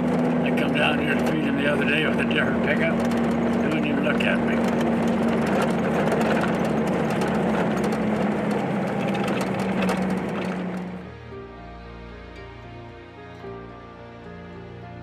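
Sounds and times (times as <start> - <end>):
soft music: 0.0 - 5.7, 9.6 - 15.0
pickup truck engine humming: 0.0 - 14.2.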